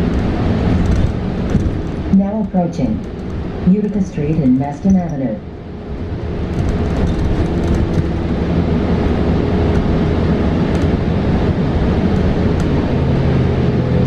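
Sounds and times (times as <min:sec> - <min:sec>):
faint steady hum: 0:00.0 - 0:06.4
bus road rumble: 0:00.0 - 0:14.0.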